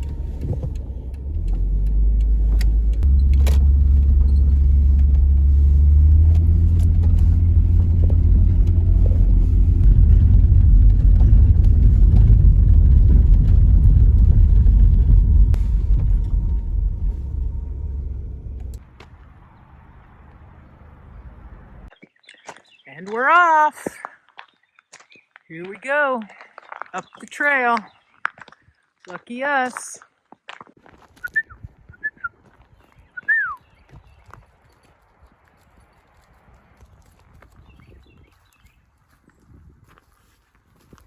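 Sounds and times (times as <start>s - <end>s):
loud low vehicle engine: 0.0s - 21.9s
road rumble: 0.0s - 21.9s, 30.9s - 41.0s.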